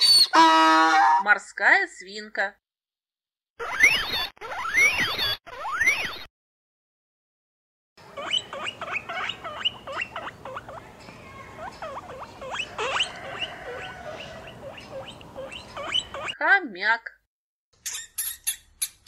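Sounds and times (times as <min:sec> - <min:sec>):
guinea pigs squeaking: 0:03.6 - 0:06.3, 0:08.0 - 0:16.4, 0:17.8 - 0:19.0.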